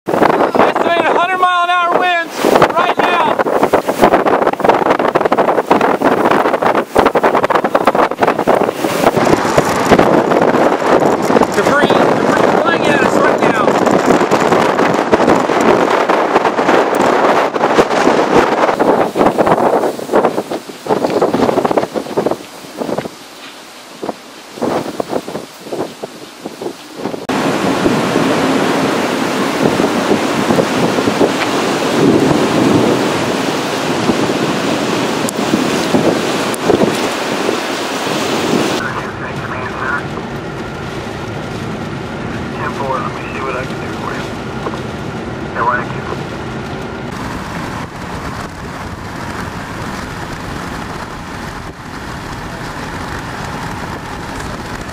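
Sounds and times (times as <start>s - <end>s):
high wind: 0.0s - 54.9s
heavy rain: 0.1s - 54.9s
low rumble: 2.2s - 22.0s, 38.7s - 54.9s.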